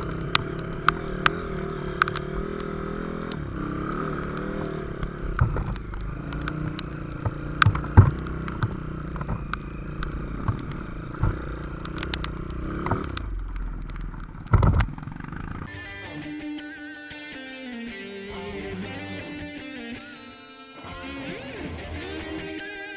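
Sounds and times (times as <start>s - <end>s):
guitar music: 0.0s - 15.0s, 15.6s - 22.9s
motorcycle engine running: 0.0s - 15.8s
clattering knocks: 13.8s - 15.7s.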